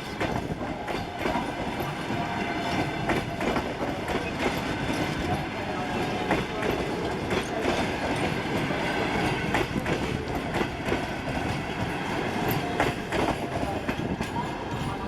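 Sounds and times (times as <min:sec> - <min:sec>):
train wheels clacking over rail joints: 0:00.0 - 0:15.0.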